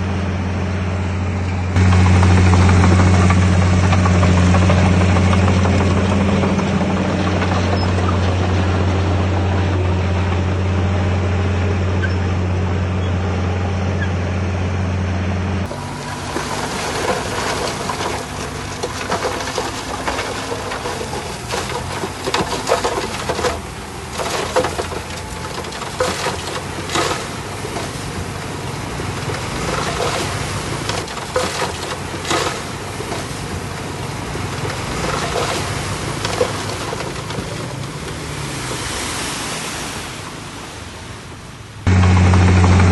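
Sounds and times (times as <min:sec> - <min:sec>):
diesel engine humming: 0:00.0 - 0:42.9
knocks and crackles: 0:01.8 - 0:10.6, 0:15.7 - 0:28.3, 0:29.0 - 0:38.6.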